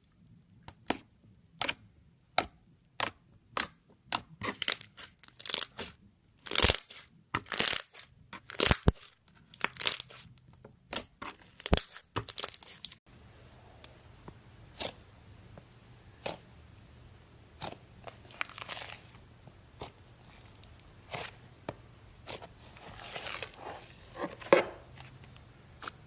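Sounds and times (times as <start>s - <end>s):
slime popping and crackling: 3.0s - 10.2s, 10.9s - 13.0s.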